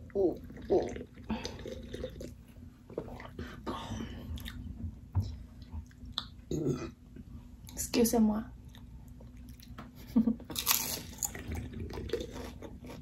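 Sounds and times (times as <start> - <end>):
chewing and crunching chips: 8.6 - 13.0.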